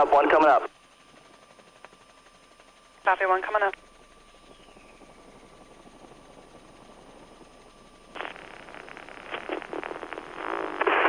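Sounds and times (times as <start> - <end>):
helicopter cabin noise: 0.0 - 11.0
radio static burst and clicks: 3.1 - 3.8, 8.1 - 11.0.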